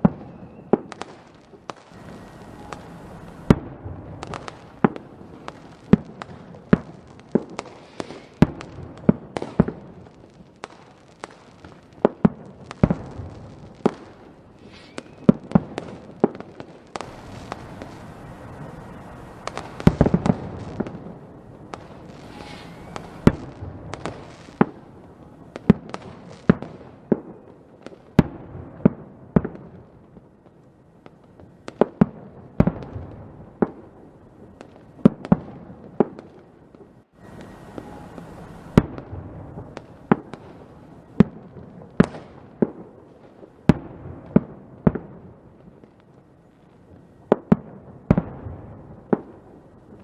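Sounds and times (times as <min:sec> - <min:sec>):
fireworks bangs: 0:00.0 - 0:50.0
fireworks crackling: 0:00.0 - 0:50.0
fireworks hiss: 0:01.0 - 0:06.3, 0:07.4 - 0:08.6, 0:12.7 - 0:16.2, 0:16.9 - 0:25.0, 0:37.2 - 0:38.9.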